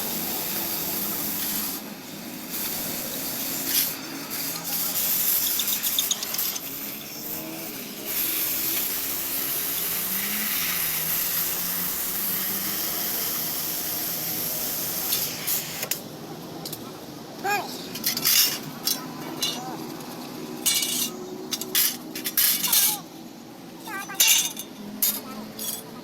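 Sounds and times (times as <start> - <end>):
spray hissing: 0.0 - 16.1.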